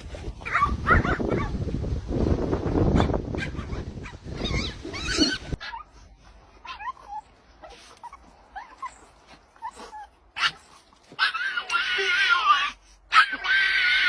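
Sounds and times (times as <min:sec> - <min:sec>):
dog whimpering and whining: 0:04.4 - 0:05.9, 0:06.6 - 0:13.6.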